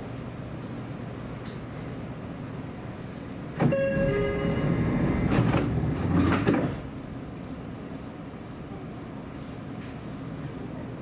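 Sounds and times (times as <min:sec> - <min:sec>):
train running noise: 0:03.5 - 0:10.3
two-tone train horn: 0:03.6 - 0:05.0
train passing with rail clatter: 0:03.6 - 0:10.3.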